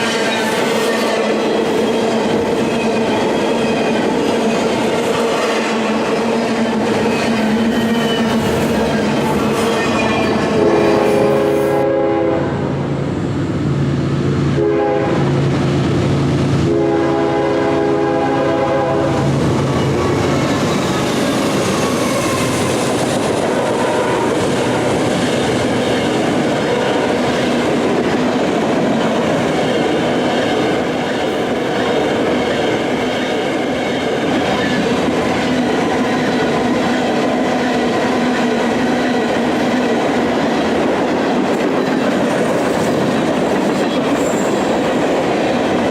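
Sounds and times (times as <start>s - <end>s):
train rumbling past: 0.0s - 45.9s
locomotive air horn: 10.5s - 12.6s, 14.6s - 15.3s, 16.6s - 19.3s.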